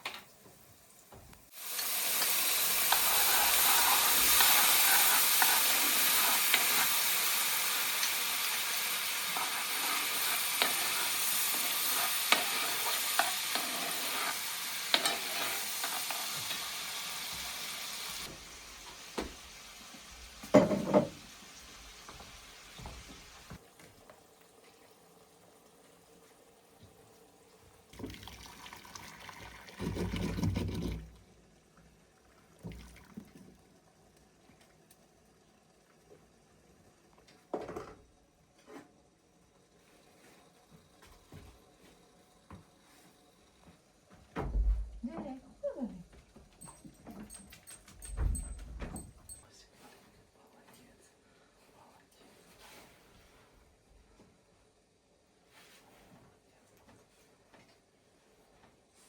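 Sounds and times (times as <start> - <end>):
food sizzling in a frying pan: 0.0 - 29.7.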